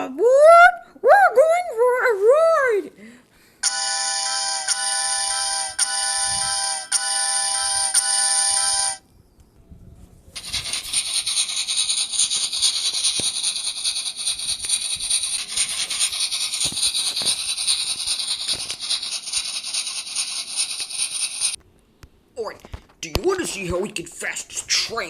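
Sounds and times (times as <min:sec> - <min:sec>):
toy electronic chime tune: 0:03.6 - 0:09.0
toy train rattling hiss: 0:10.4 - 0:21.6.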